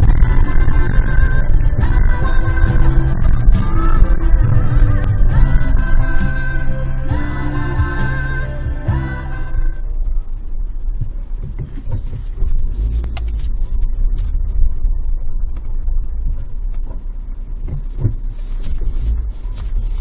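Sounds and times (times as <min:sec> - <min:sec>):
engine and tyres rumbling: 0:00.0 - 0:20.0
knocks and rattles: 0:10.9 - 0:19.3.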